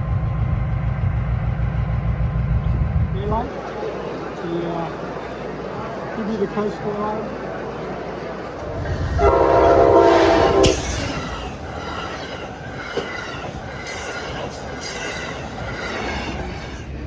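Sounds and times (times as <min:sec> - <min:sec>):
high-pitched squeals: 0:08.0 - 0:17.0
train horn chord: 0:08.6 - 0:11.4.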